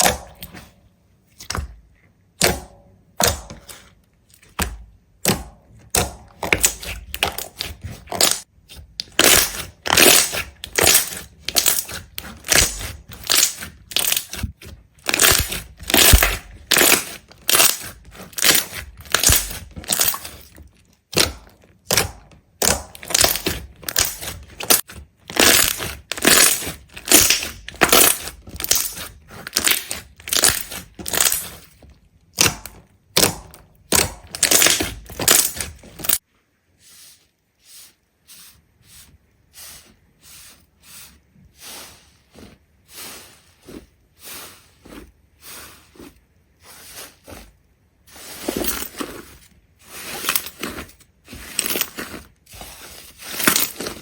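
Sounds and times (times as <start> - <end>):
crisp crunching strokes: 36.8 - 54.0.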